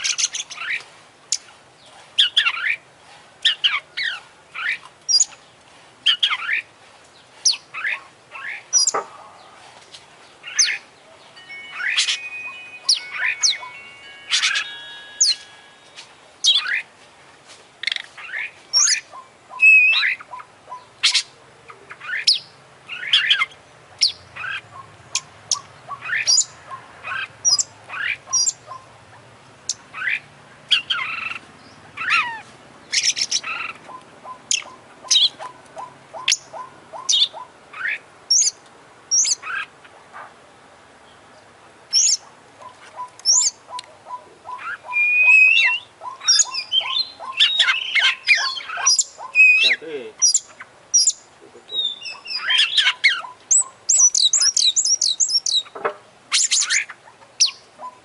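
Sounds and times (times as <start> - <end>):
bird singing chirps and whistles: 11.4 - 16.8, 17.8 - 21.3, 43.0 - 55.7.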